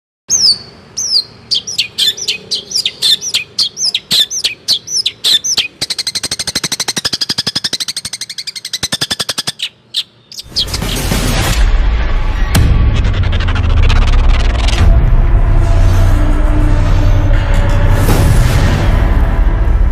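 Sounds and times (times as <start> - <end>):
songbird singing: 0.3 - 11.0
loud dense low noise: 10.5 - 19.9.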